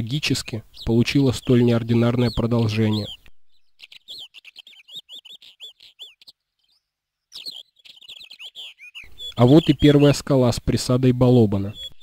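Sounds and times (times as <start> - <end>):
bird chirping rapidly: 0.0 - 12.0.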